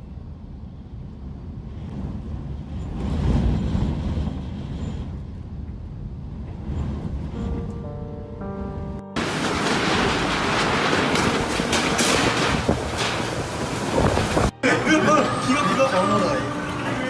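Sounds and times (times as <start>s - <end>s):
strong wind gusting: 0.0s - 14.9s
steady musical tones: 7.2s - 17.0s.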